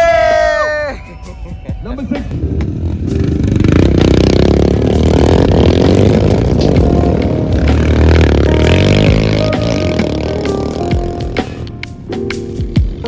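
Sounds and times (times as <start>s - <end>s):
motorcycle engines revving: 1.2s - 12.0s.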